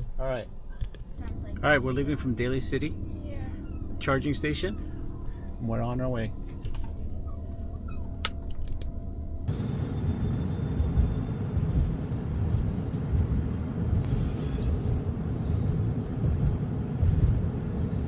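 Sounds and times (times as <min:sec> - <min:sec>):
road and wind noise: 0:08.2 - 0:18.0.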